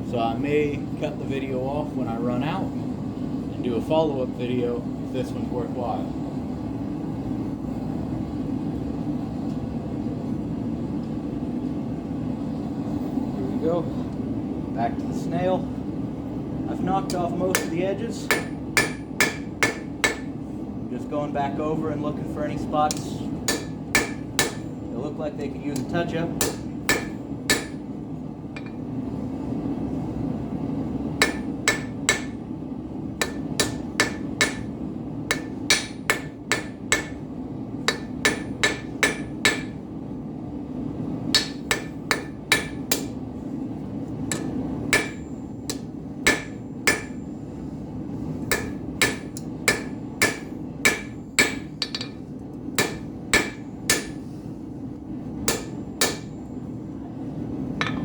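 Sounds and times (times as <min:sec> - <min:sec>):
gas forge burner hum: 0:00.0 - 0:58.0
hammer ringing on anvil: 0:17.1 - 0:20.3, 0:26.4 - 0:27.8, 0:31.2 - 0:32.4, 0:33.2 - 0:34.7, 0:35.3 - 0:37.2, 0:37.9 - 0:39.8, 0:41.4 - 0:43.1, 0:44.3 - 0:47.2, 0:48.5 - 0:52.2, 0:52.8 - 0:54.2, 0:55.5 - 0:56.4, 0:57.8 - 0:58.0.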